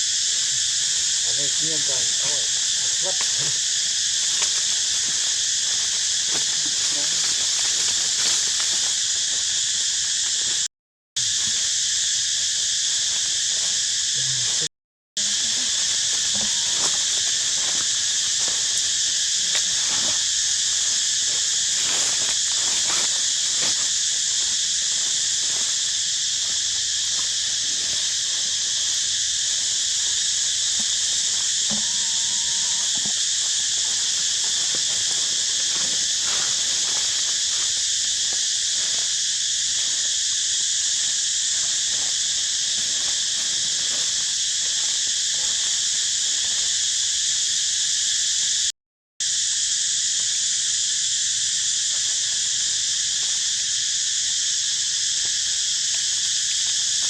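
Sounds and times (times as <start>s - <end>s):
insects buzzing: 0.0s - 57.0s.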